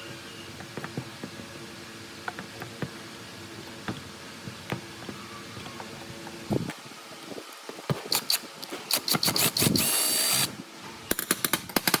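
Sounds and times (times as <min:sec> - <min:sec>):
metal parts clicking and knocking: 0:11.1 - 0:12.0.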